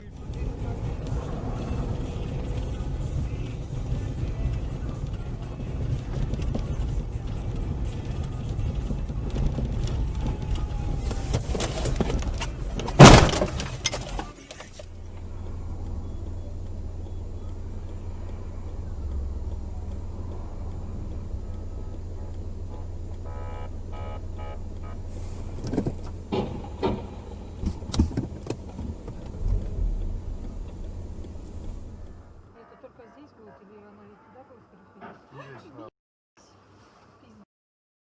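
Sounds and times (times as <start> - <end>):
vehicle road and engine noise: 0.0 - 32.6
loud crash impact: 13.0 - 13.7
low hum: 14.7 - 32.5.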